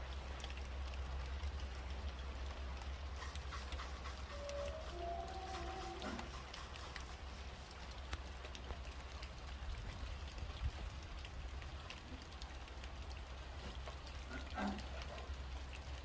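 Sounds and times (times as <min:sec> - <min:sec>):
rain hissing: 0:00.0 - 0:16.0
raindrop ticks: 0:00.0 - 0:16.0
short pitched sound: 0:03.2 - 0:06.6.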